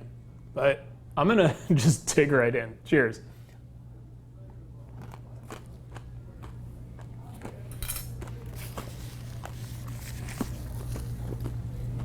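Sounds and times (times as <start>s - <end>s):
person chewing crunchy food: 4.8s - 12.0s.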